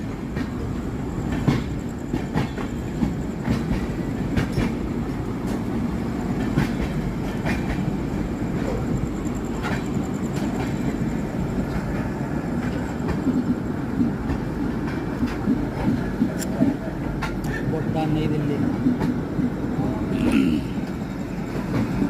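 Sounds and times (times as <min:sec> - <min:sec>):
train coach rumble: 0:00.0 - 0:22.0
wheels clicking over rail joints: 0:01.2 - 0:17.9.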